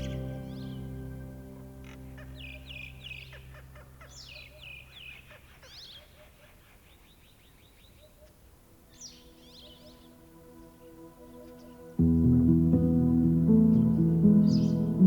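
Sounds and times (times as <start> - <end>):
soft background music: 0.0 - 4.6, 8.6 - 15.0
birds chirping: 0.0 - 15.0.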